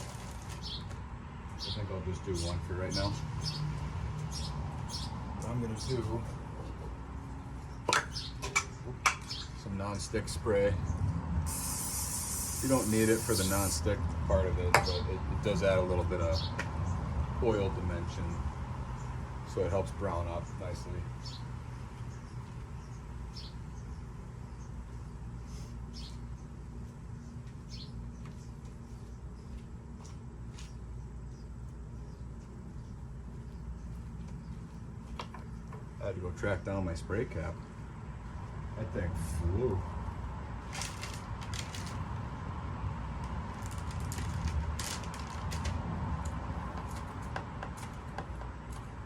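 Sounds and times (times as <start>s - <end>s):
high bird chirps: 11.5s - 13.7s.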